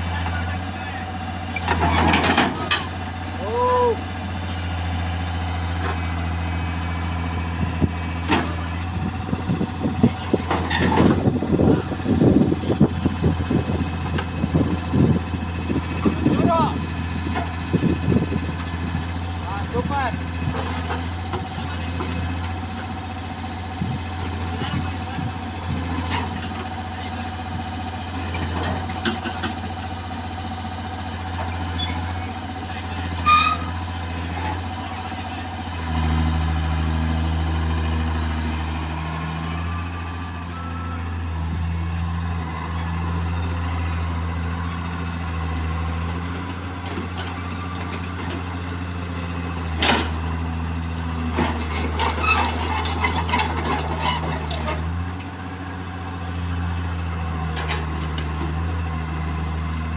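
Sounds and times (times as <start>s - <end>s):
diesel engine running: 0.0s - 59.9s
knocks and clanks: 1.6s - 2.9s.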